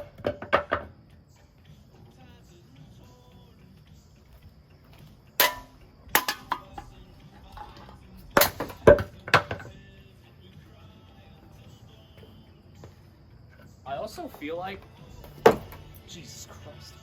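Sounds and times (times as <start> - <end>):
ceiling fan crashing apart: 5.4 - 6.8, 8.4 - 9.7.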